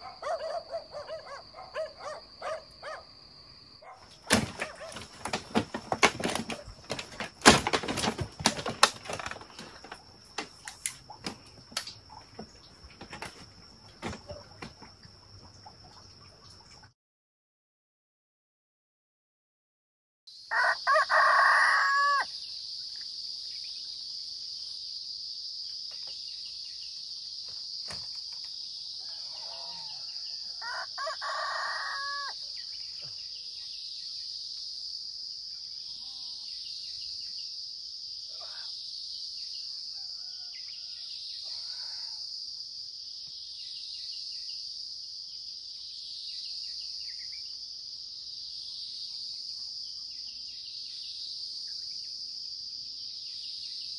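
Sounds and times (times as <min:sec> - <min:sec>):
high drone of insects: 0:20.3 - 0:53.9
rooster crowing: 0:20.5 - 0:22.3, 0:29.0 - 0:32.4, 0:39.9 - 0:41.1.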